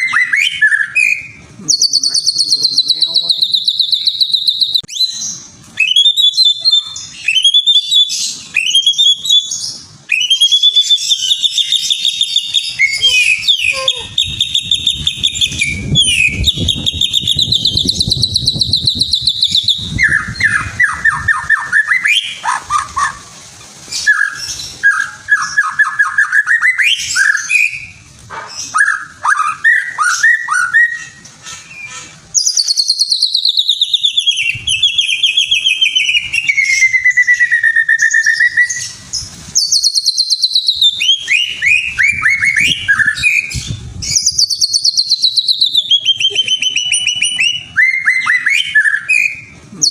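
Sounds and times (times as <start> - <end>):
songbird singing trills: 0.0 - 23.2, 28.6 - 49.9.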